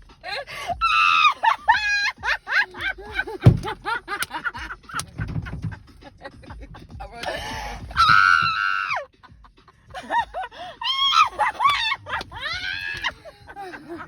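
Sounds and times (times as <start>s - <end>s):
cackling laughter: 0.3s - 14.0s
person screaming: 8.0s - 9.0s.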